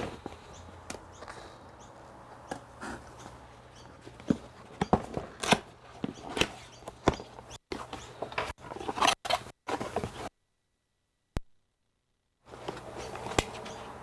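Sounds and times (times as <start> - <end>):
rustling: 0.0 - 10.3.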